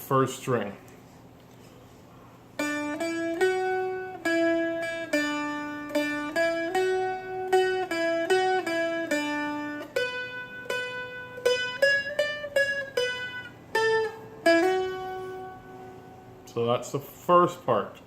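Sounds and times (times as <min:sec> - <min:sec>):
faint steady drone: 0:02.1 - 0:16.5
string instrument picked melody: 0:02.6 - 0:16.4.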